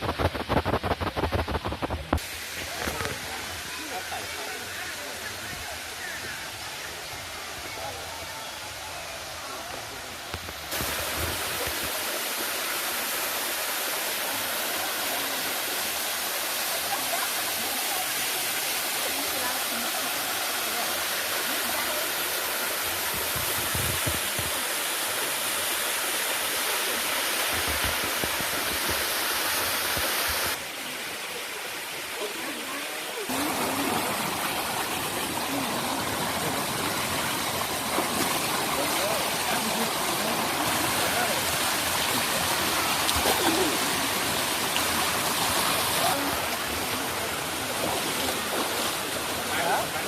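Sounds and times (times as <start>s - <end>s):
low water rumbles: 0.0s - 50.0s
waterfall rushing over rocks: 0.0s - 50.0s.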